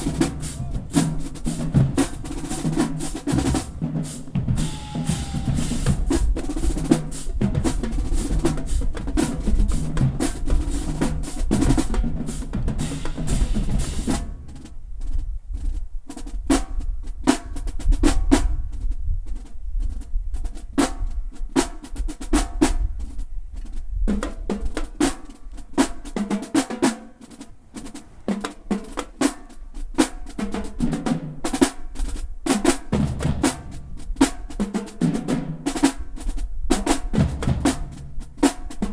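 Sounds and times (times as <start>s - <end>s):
bass drums: 0.0s - 14.8s, 32.9s - 38.9s
snare drums rolling and striking: 0.0s - 14.8s, 24.1s - 38.9s.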